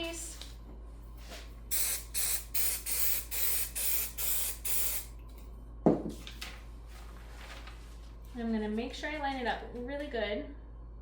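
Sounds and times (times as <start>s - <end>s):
aerosol can spraying hisses: 1.7s - 5.1s.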